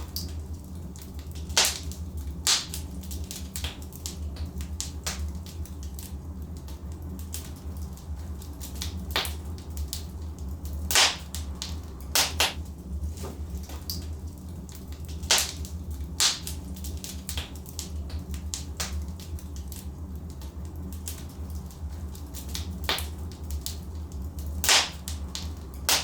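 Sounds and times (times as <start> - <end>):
logs crackling in fireplace: 0.0 - 26.0
low fire rumble: 0.0 - 26.0
sharp fire pops: 1.4 - 6.1, 10.9 - 12.6, 15.0 - 19.9, 22.3 - 23.8, 24.6 - 26.0.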